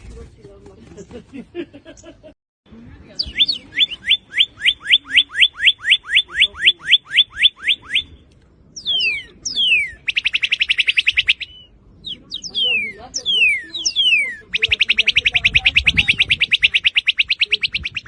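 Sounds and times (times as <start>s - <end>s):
bird singing whistles and trill: 3.2s - 8.2s, 8.8s - 18.0s.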